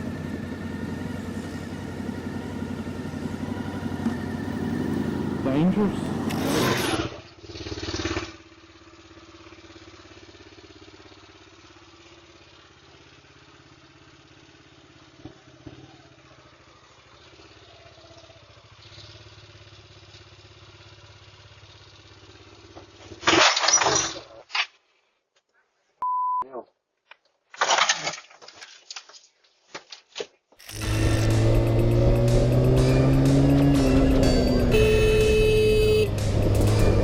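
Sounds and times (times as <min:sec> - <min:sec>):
motorcycle engine idling: 0:00.0 - 0:06.3, 0:07.2 - 0:23.2, 0:30.8 - 0:37.0.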